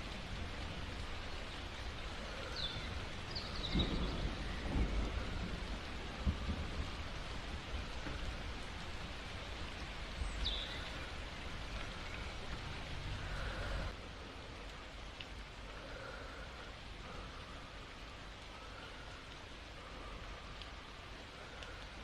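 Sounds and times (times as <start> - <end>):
thunder rumbling: 0.0 - 14.0
steady rain: 0.0 - 22.0.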